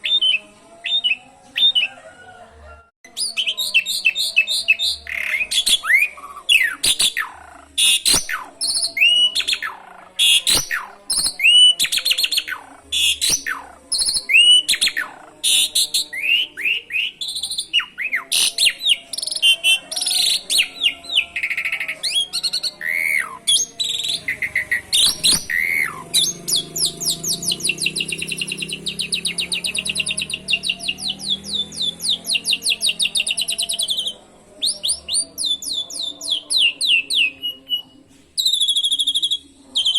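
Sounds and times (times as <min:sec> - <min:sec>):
rapid canary-like trill: 0:03.1 - 0:39.9
starling chirps and whistles: 0:03.1 - 0:39.9.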